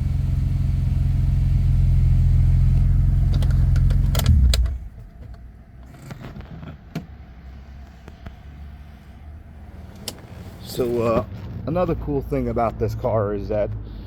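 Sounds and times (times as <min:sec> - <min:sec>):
car engine idling: 0:00.0 - 0:06.1.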